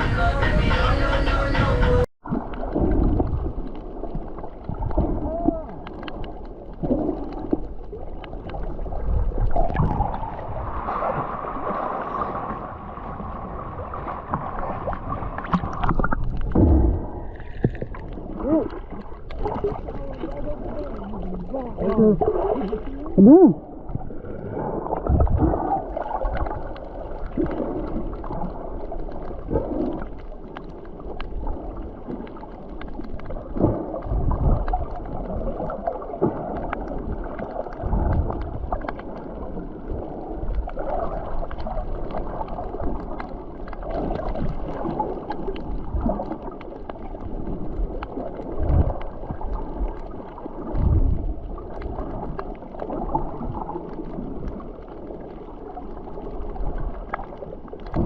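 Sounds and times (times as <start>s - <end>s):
wind rumbling on microphone: 0.0s - 30.1s, 33.1s - 54.7s
water rushing along a hull: 0.0s - 58.0s.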